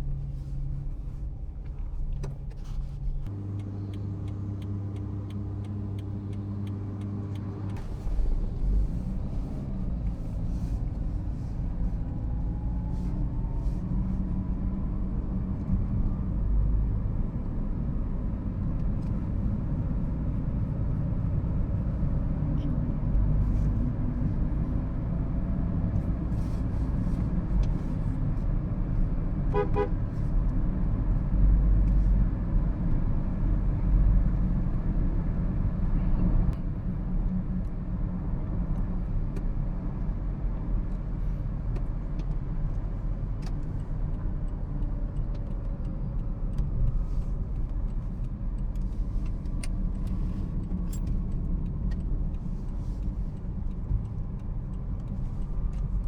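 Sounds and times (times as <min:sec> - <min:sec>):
car driving rumble: 0:00.0 - 0:56.0
car horn toot: 0:29.5 - 0:30.0.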